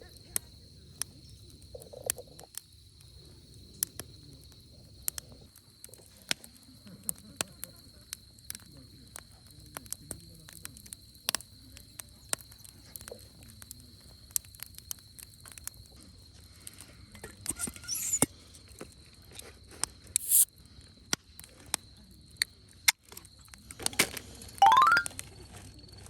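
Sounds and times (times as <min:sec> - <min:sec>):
wood fire crackling: 0:00.4 - 0:16.7.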